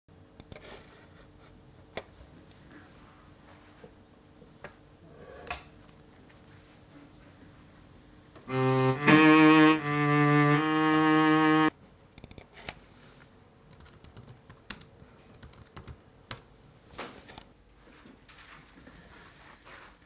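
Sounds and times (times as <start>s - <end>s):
loud tone stepping in pitch: 8.5s - 11.7s
faint keyboard typing clicks: 12.2s - 12.5s, 13.7s - 16.5s.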